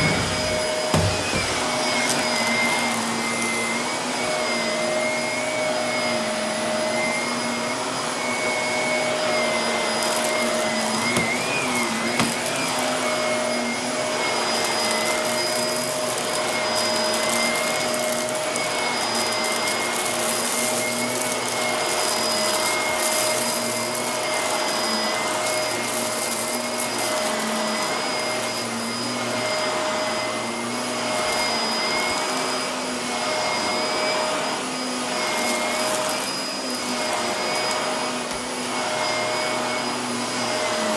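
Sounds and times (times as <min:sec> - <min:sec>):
grit crackling in vacuum: 0:00.0 - 0:03.6
vacuum cleaner whining: 0:00.0 - 0:40.9.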